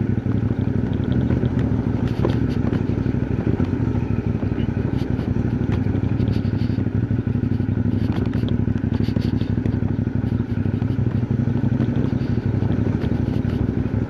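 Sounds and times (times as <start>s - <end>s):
motorcycle engine running: 0.0s - 14.0s
small clicks and rattles: 0.6s - 3.8s, 7.4s - 13.7s.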